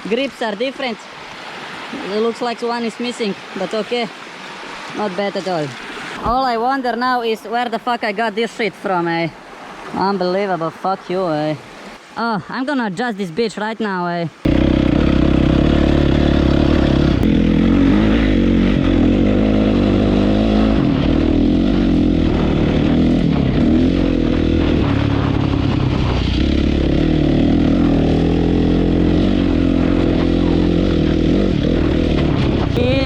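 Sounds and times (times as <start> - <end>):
loud motorcycle engine running: 14.5 - 33.0.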